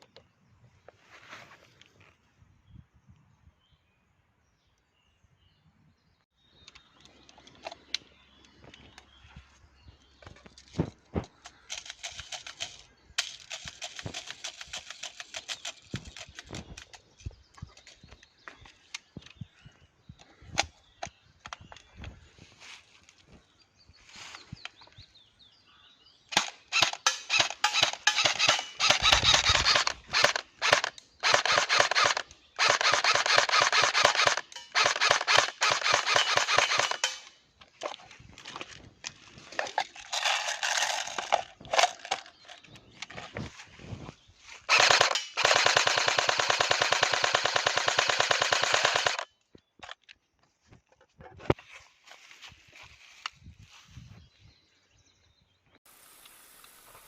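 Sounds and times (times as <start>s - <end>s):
airsoft gun firing: 26.3s - 37.3s, 44.7s - 49.2s.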